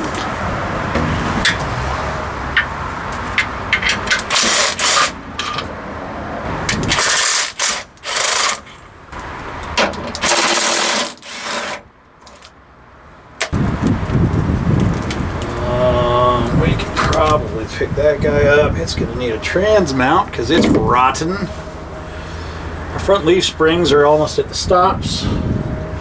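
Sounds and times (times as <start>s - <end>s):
power wrench spinning bolts: 6.7s - 8.8s, 10.0s - 12.5s.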